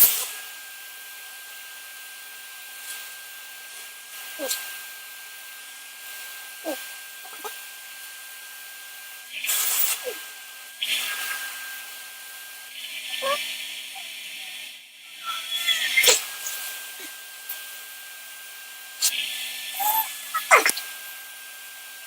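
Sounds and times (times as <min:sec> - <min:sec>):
short squeaks: 0:15.2 - 0:16.7.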